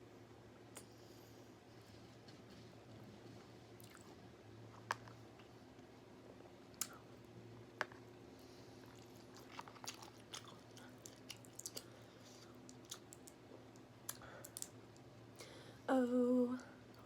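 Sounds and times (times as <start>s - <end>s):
person chewing: 3.8s - 4.2s, 8.7s - 14.7s.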